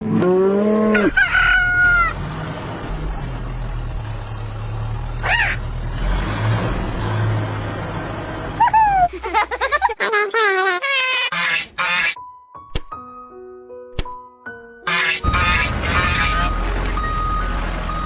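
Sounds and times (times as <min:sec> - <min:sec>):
rooster crowing: 0:00.9 - 0:02.2.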